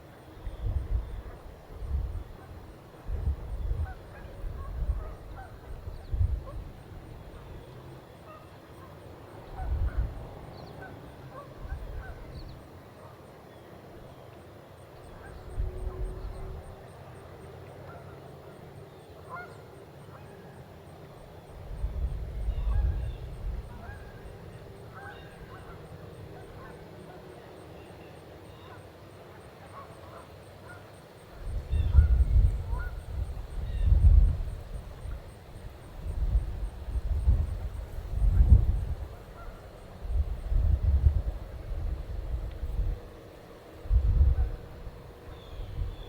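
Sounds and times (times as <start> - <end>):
wind buffeting microphone: 0.4 - 7.6, 9.5 - 10.5, 21.6 - 25.6, 31.4 - 46.0
geese honking: 23.7 - 27.1.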